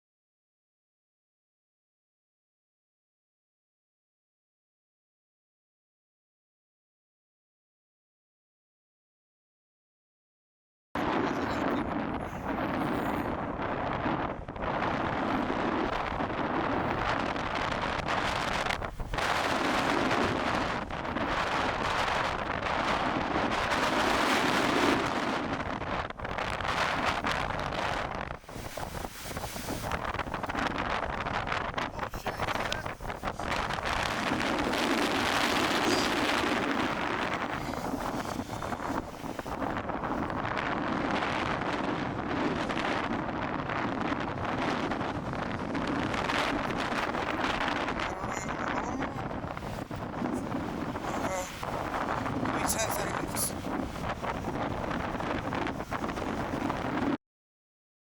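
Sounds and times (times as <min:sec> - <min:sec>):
strong wind buffeting microphone: 0:11.0 - 0:57.2.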